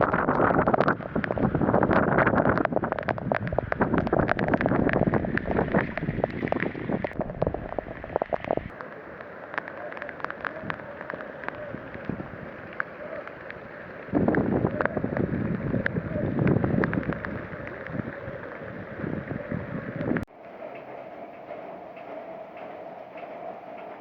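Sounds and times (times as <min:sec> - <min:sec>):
sharp clicks and rattles: 0:00.0 - 0:08.8
storm wind buffeting microphone: 0:00.0 - 0:24.0.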